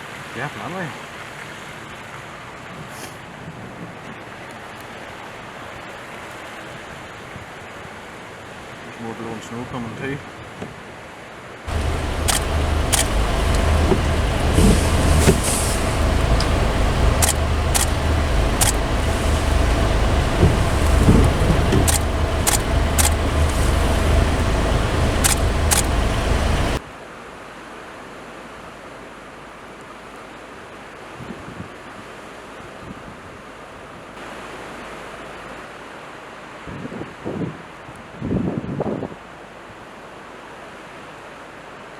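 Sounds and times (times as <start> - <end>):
sharp clicks: 11.7 - 26.8
vehicle engine rumbling: 11.7 - 26.8.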